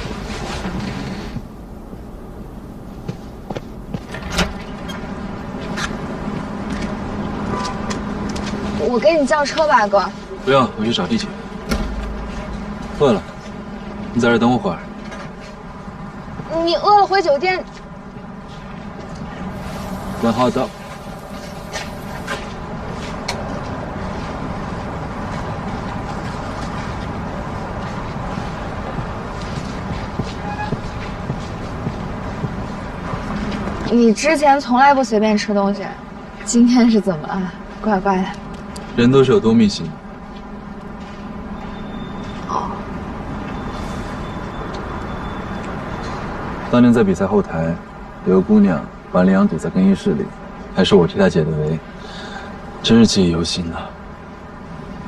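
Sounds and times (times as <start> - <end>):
traffic rumble: 0.0 - 55.0
steady hum: 19.3 - 23.1.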